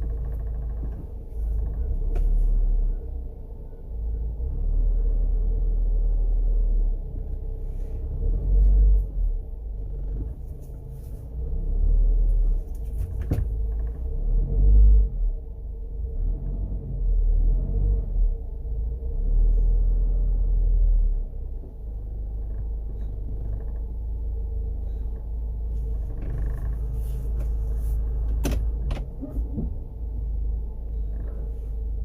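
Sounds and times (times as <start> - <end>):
car engine humming: 0.0 - 32.0
steady engine whine: 0.0 - 32.0.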